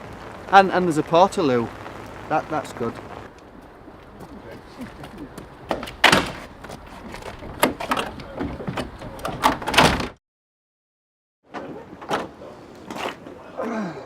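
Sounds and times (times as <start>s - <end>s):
rough background noise: 0.0s - 10.1s
loud clunks and knocks: 5.7s - 10.2s.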